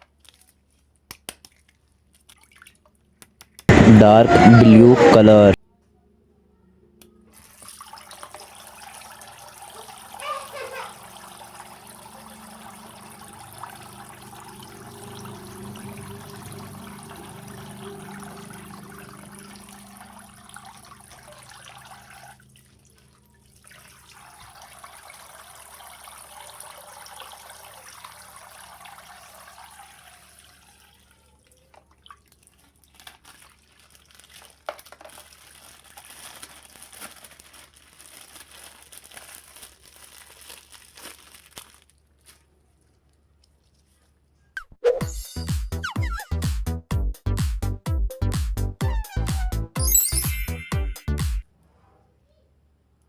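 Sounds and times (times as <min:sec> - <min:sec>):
water trickling from plastic bag: 0:00.0 - 0:03.2, 0:07.3 - 0:44.2
wet plastic clicking: 0:01.1 - 0:02.4, 0:03.2 - 0:03.7.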